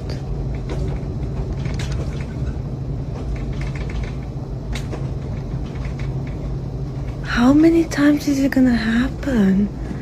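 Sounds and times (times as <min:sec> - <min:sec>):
knocks and rattles: 0:00.0 - 0:08.0
low earthquake rumble: 0:00.0 - 0:10.0.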